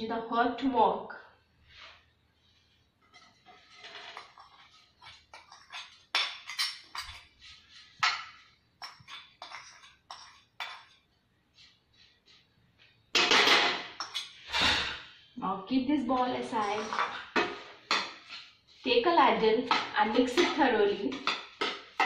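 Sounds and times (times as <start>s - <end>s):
spoon scraping and knocking bowl: 3.1s - 12.4s, 13.1s - 14.4s, 16.5s - 18.9s, 19.6s - 22.0s.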